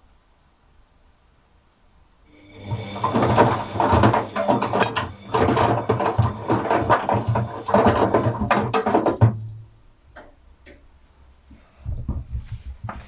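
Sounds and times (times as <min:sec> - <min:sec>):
washing machine motor humming: 0:02.3 - 0:09.8
objects knocking inside drum: 0:02.5 - 0:10.3.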